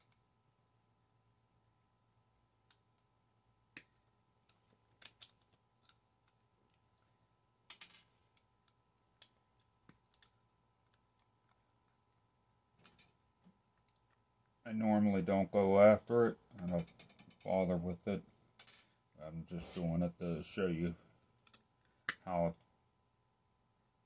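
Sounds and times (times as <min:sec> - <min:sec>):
small clicks of tools handled: 0:03.8 - 0:06.8, 0:07.7 - 0:11.6, 0:21.3 - 0:22.2.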